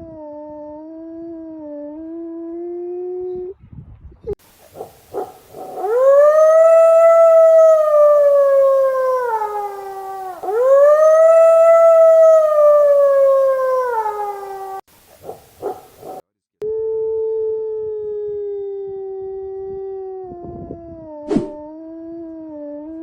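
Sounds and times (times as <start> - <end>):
wolf howling: 4.8 - 23.0.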